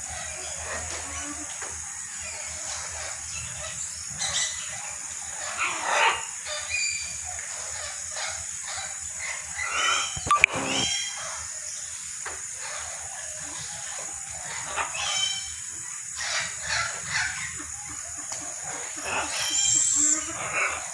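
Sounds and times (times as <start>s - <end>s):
high-pitched hiss: 3.0s - 20.9s
short animal calls: 9.7s - 11.1s.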